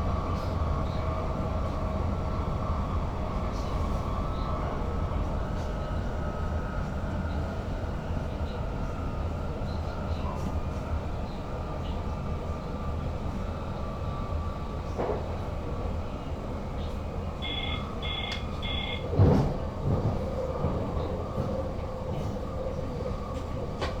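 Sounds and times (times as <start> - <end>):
train running rumble: 0.0 - 24.0
short electronic beeps: 17.4 - 19.0.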